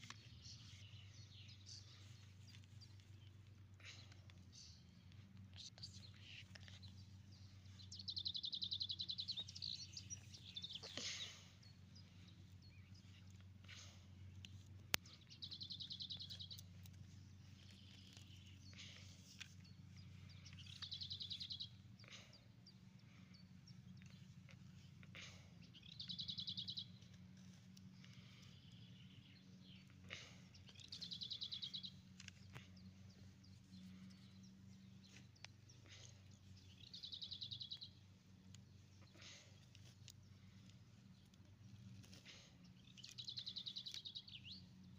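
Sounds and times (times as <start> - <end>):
faint low hum: 0.0 - 44.9
songbird trilling: 6.0 - 13.3, 25.8 - 27.0.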